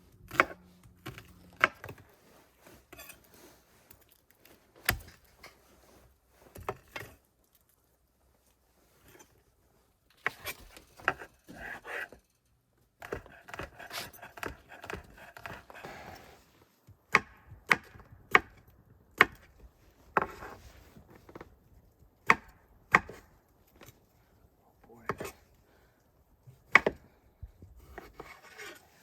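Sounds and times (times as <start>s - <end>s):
knife chopping on cutting board: 13.0s - 16.1s.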